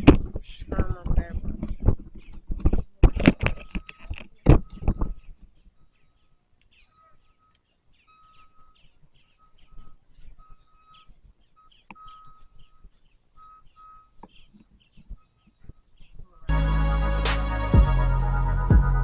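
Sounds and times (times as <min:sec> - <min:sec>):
faint bird chirps: 0:01.6 - 0:16.5.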